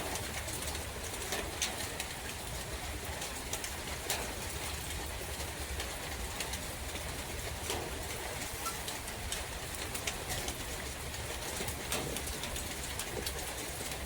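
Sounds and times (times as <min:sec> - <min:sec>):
rain hissing in forest: 0:00.0 - 0:14.0
raindrops ticking: 0:00.0 - 0:14.0.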